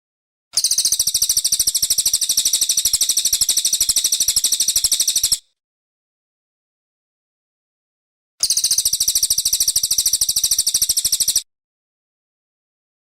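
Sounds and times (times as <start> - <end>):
songbird high-pitched trill: 0.6 - 5.4, 8.4 - 11.5.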